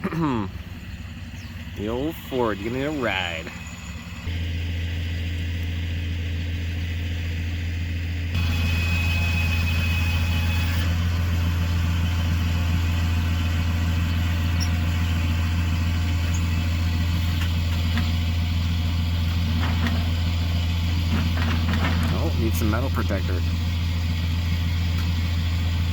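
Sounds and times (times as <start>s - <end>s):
truck engine idling: 0.0s - 25.9s.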